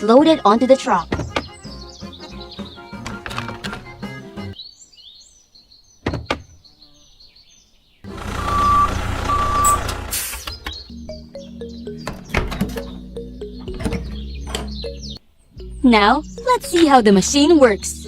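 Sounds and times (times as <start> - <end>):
birds chirping: 0.0 - 18.0
truck engine running: 8.1 - 11.2.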